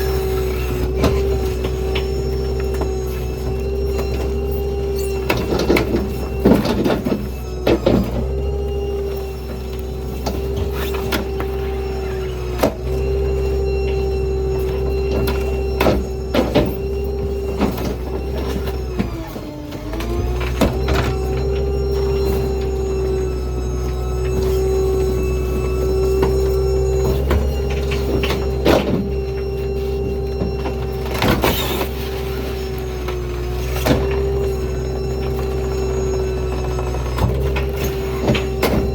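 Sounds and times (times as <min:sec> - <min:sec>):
hydraulic whine: 0:00.0 - 0:38.9
truck engine rumble: 0:00.0 - 0:38.9
metal knocks and clank: 0:33.1 - 0:38.9.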